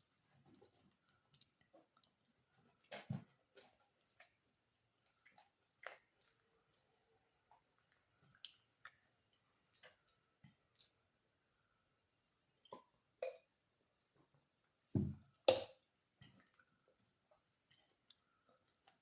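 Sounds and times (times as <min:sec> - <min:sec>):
soft chewing: 0:00.0 - 0:11.8, 0:12.5 - 0:14.8, 0:15.8 - 0:19.0.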